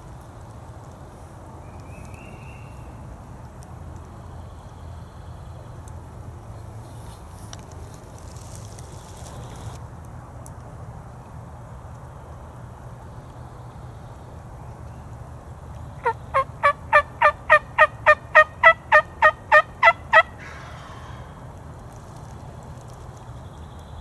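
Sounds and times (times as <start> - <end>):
turkey yelps: 16.0 - 21.3.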